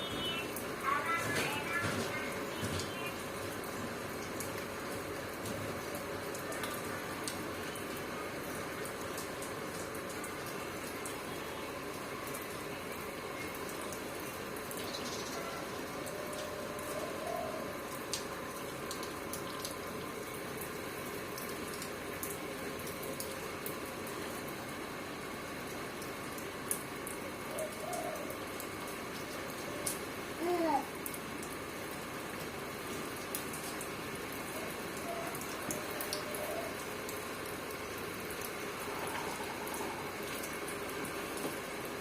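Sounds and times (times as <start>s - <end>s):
rain falling and splashing: 0.0s - 42.0s
sharp drip clicks: 0.1s - 15.4s, 17.9s - 24.2s.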